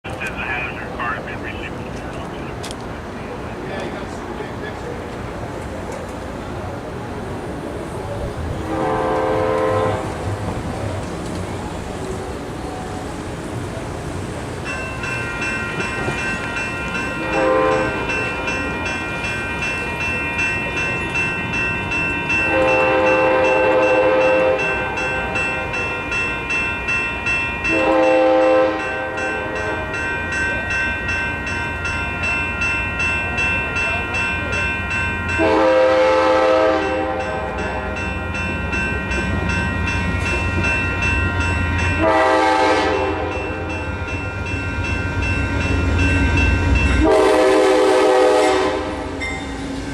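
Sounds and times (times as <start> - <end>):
train rumble: 0.0 - 49.9
crossing bells ringing: 0.1 - 2.7, 14.6 - 49.9
locomotive horn blasts: 8.6 - 10.2, 17.2 - 18.2, 22.4 - 25.4, 27.7 - 29.8, 35.4 - 37.6, 42.0 - 43.5, 47.0 - 49.1.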